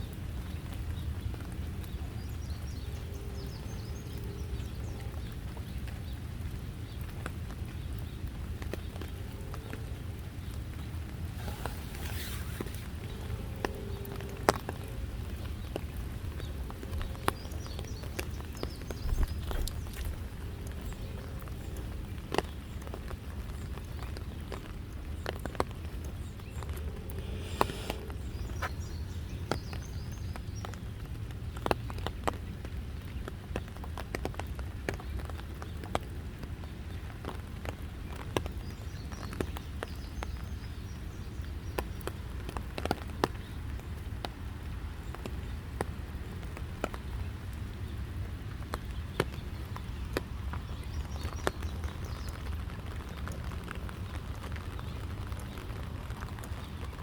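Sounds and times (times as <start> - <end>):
raindrops tapping: 0.0 - 57.0
steady low rumble: 9.2 - 23.7.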